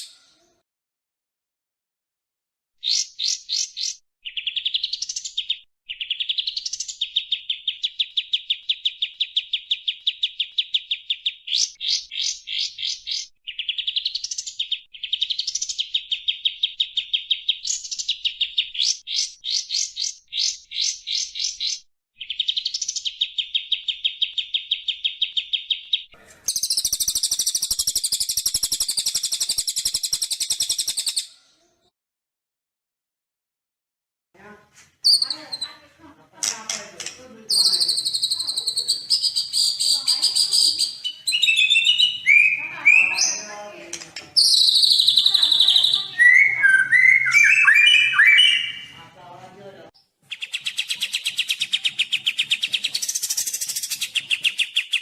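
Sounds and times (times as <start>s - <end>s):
songbird trilling: 2.8s - 31.2s, 36.5s - 43.6s, 44.4s - 48.9s.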